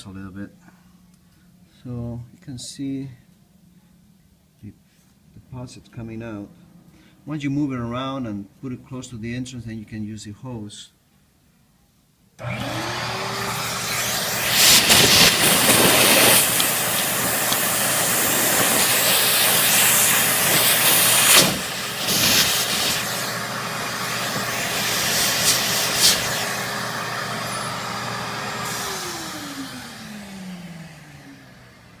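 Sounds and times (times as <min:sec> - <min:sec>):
vacuum motor winding down: 0:12.4 - 0:32.0
wet dry vacuum running: 0:12.4 - 0:32.0.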